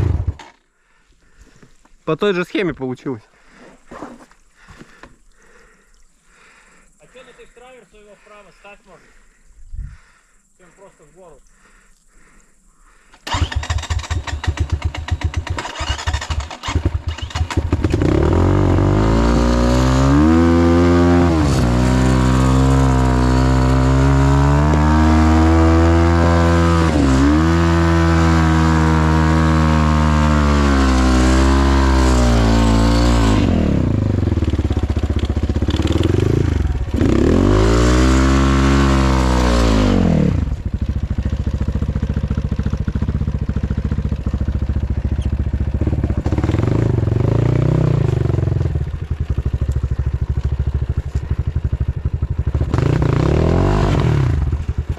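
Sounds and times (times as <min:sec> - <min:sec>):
off-road motorcycle engine revving: 0:00.0 - 0:00.6, 0:11.6 - 0:54.9.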